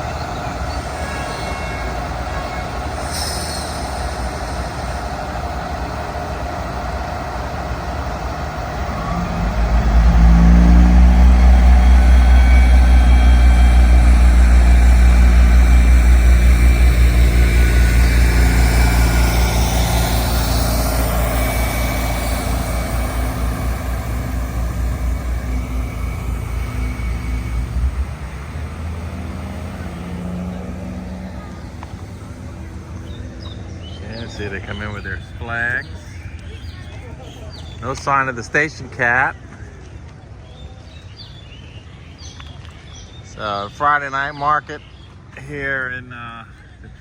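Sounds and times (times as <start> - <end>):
diesel locomotive engine drone: 0.0 - 47.0.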